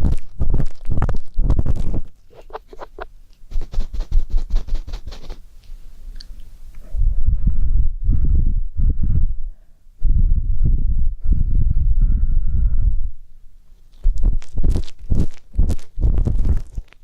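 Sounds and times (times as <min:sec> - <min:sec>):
ear pick scraping microphone: 0:00.0 - 0:05.4
low microphone contact rumble: 0:06.8 - 0:13.4, 0:14.0 - 0:17.0.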